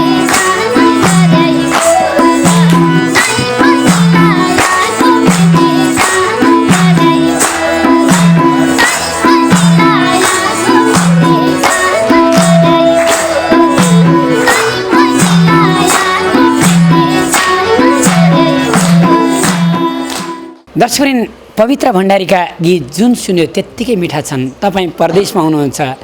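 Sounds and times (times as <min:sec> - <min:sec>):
hand drum rhythm: 0:00.0 - 0:20.6
melody instruments playing: 0:00.0 - 0:20.6.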